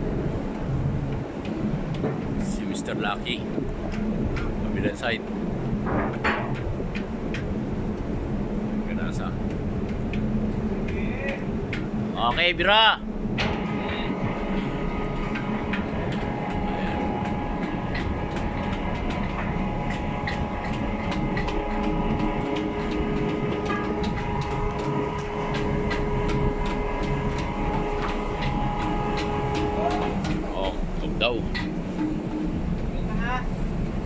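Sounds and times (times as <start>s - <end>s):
winch mechanical drone: 0.0s - 34.0s
sharp irregular clicks: 14.8s - 30.8s.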